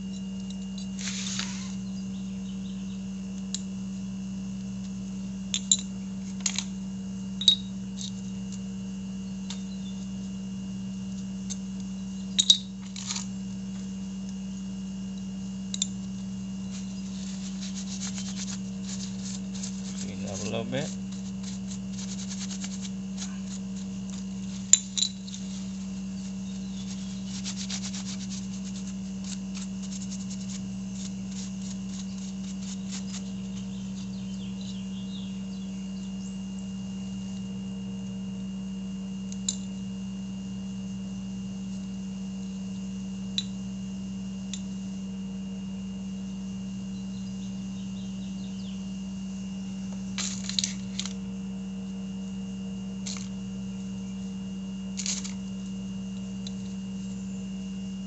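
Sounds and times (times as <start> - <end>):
steady low hum: 0.0 - 58.0
scrubbing brake parts: 16.6 - 34.8.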